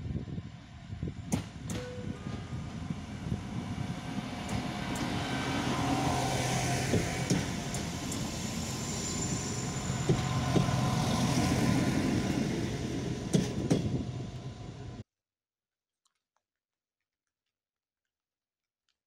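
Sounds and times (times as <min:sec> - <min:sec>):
train running gear noise: 0:00.2 - 0:15.0
diesel engine hum: 0:02.0 - 0:15.0.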